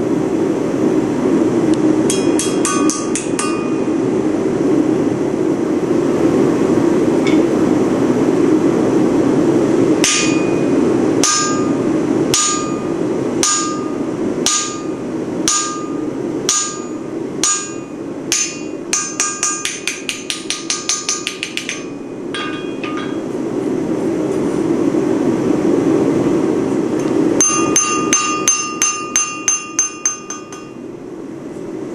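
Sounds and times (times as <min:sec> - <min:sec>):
hammer ringing on anvil: 0:02.1 - 0:03.9, 0:10.0 - 0:23.3, 0:27.4 - 0:30.8.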